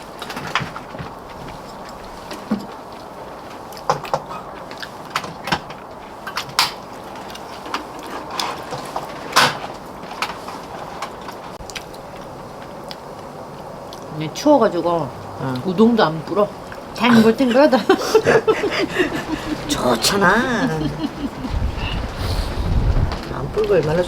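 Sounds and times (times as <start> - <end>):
low hiss: 11.7 - 24.0.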